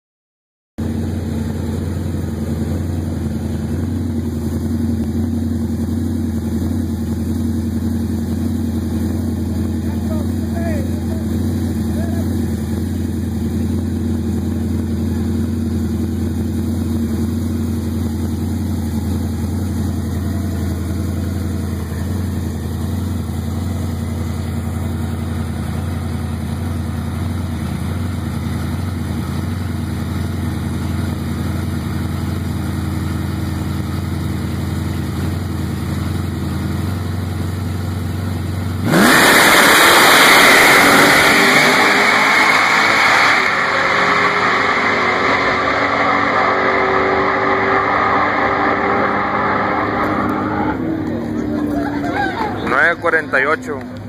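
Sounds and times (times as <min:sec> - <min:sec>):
pickup engine humming: 0:00.8 - 0:54.0.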